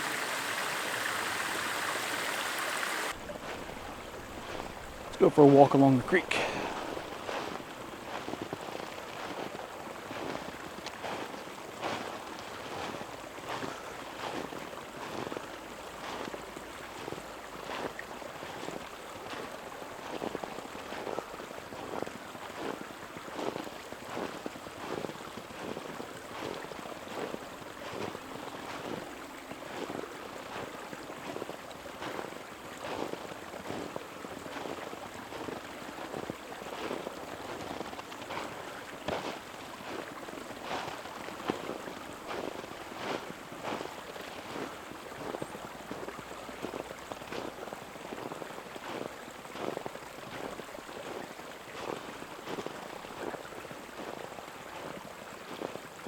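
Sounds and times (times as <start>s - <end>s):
creek rushing: 0.0s - 9.5s, 25.0s - 56.0s
footsteps on a trail: 0.0s - 9.5s, 34.5s - 45.3s.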